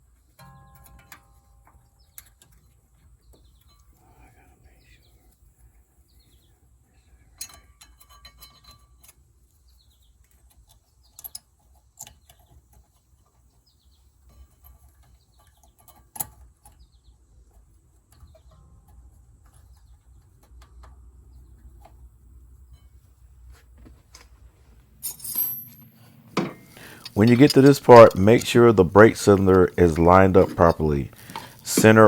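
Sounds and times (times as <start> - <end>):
small birds chirping: 1.8 - 7.5, 9.4 - 22.8, 26.6 - 32.0
metallic clicks of hand tools: 26.4 - 32.0.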